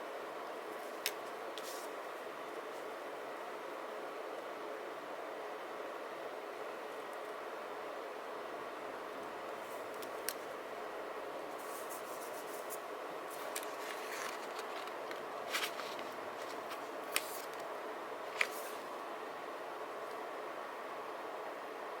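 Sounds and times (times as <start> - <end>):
steady background hiss: 0.0 - 22.0
paper clicks and ticks: 13.4 - 17.7.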